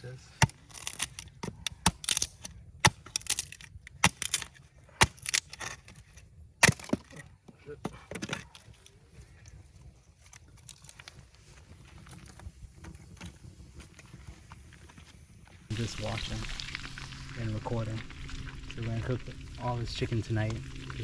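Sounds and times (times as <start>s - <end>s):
objects being handled clicks: 0.4s - 7.3s.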